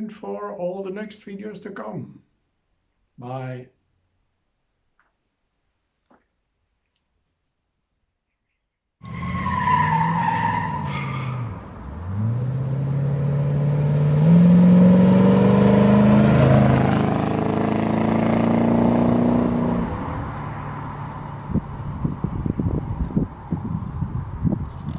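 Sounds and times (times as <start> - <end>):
car engine accelerating: 9.0 - 23.6.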